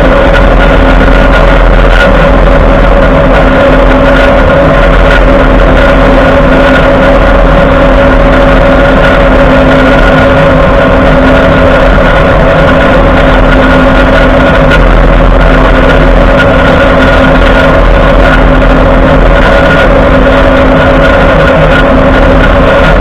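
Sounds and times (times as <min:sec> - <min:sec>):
grinding drone with whine: 0:00.0 - 0:23.0.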